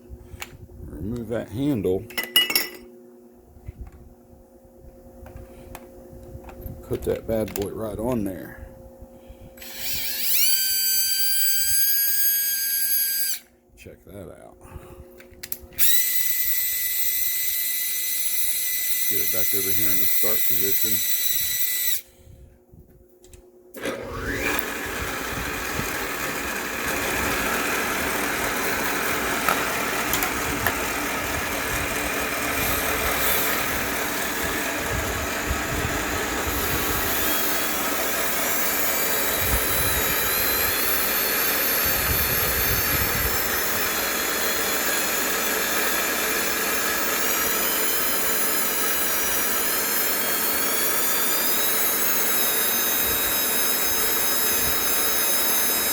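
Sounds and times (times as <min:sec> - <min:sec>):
end mill cutting metal: 0:09.6 - 0:13.4, 0:15.8 - 0:22.0, 0:23.8 - 0:55.9
milling machine running: 0:09.6 - 0:13.4, 0:15.8 - 0:22.0, 0:23.8 - 0:55.9
cordless drill turning: 0:09.6 - 0:13.5, 0:15.4 - 0:22.1, 0:23.7 - 0:55.9.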